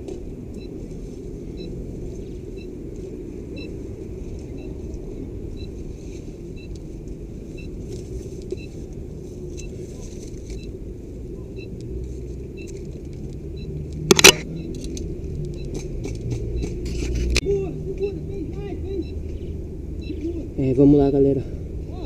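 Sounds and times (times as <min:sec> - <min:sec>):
short electronic beeps: 0:16.5 - 0:16.8, 0:19.0 - 0:19.2, 0:20.0 - 0:20.3.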